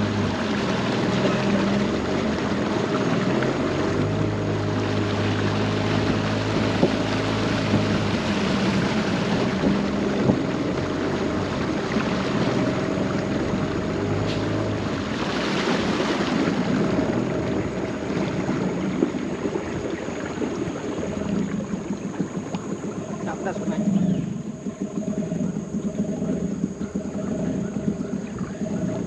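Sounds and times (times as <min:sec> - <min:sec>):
boat motor humming: 0:00.0 - 0:29.0
water rushing: 0:00.0 - 0:29.0
wind: 0:00.0 - 0:29.0.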